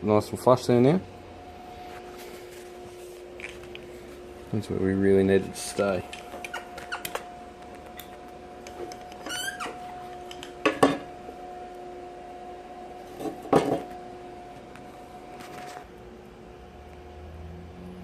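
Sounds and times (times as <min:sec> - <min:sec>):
steady electrical hum: 0:00.0 - 0:18.0
short squeak: 0:09.2 - 0:09.8.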